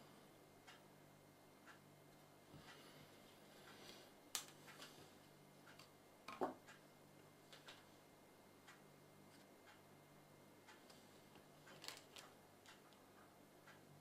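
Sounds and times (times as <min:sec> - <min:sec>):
faint low hum: 0:00.0 - 0:14.0
faint small clicks and taps: 0:10.7 - 0:13.8.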